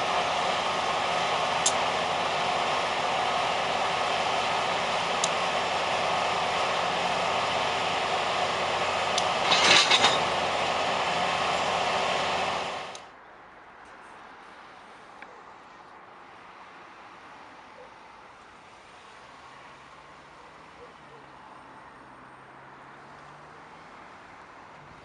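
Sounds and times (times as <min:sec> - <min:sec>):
railway equipment running: 0:00.0 - 0:13.2.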